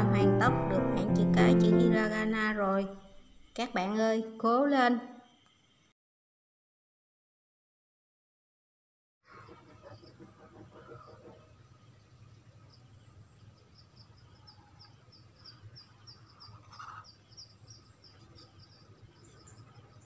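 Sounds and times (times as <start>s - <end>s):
faint low hum: 0.0s - 5.9s.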